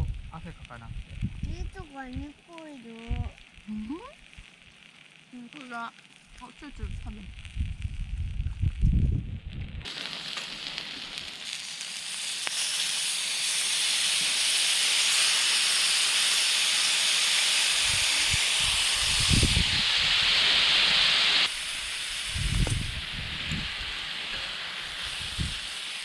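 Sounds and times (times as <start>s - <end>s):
meat sizzling on a griddle: 0.0s - 9.1s, 9.8s - 26.0s.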